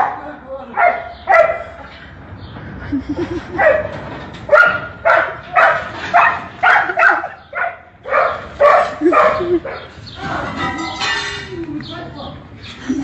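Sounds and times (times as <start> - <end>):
dog barking: 0.0 - 1.8, 3.6 - 3.9, 4.5 - 9.9.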